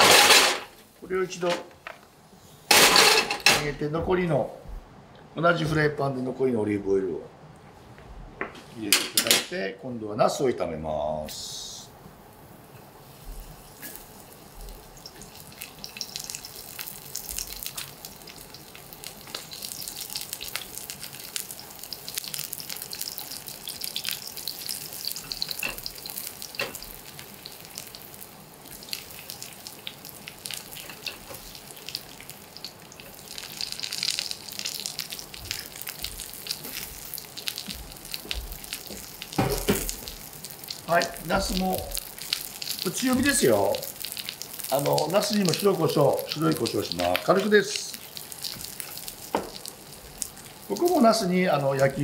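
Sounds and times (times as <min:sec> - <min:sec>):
slices sizzling in hot oil: 0:11.3 - 0:52.0.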